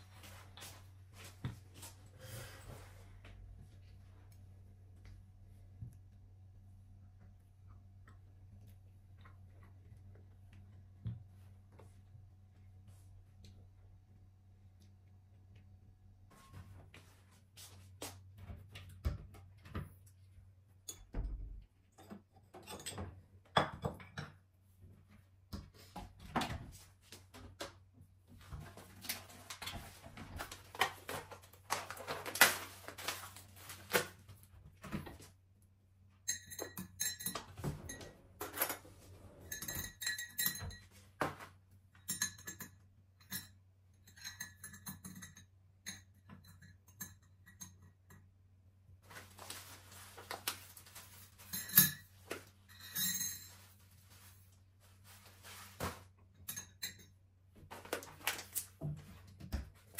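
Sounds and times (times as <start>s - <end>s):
dishes and cutlery clattering: 22.0s - 24.4s, 36.2s - 48.3s, 51.4s - 53.7s, 56.4s - 57.2s
crockery clinking: 36.2s - 41.0s, 42.0s - 48.2s.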